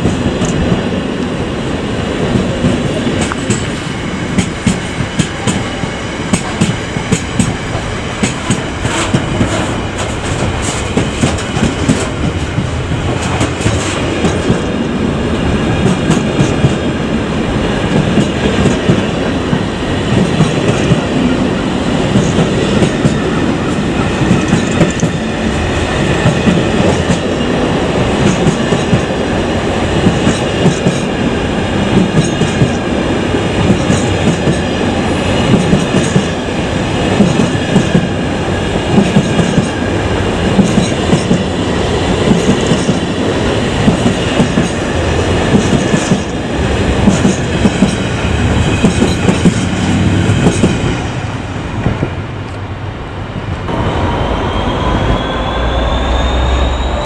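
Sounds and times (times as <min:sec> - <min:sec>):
clickety-clack over rail joints: 0:00.0 - 0:01.0, 0:02.3 - 0:15.0, 0:15.7 - 0:16.9, 0:17.9 - 0:21.3, 0:22.0 - 0:25.3, 0:26.0 - 0:29.2, 0:29.8 - 0:31.2, 0:31.9 - 0:32.9, 0:33.5 - 0:34.8, 0:35.4 - 0:36.4, 0:37.0 - 0:38.2, 0:38.8 - 0:51.1
wheels rumbling on rail: 0:00.0 - 0:57.0
faint wheel squeal: 0:54.0 - 0:57.0.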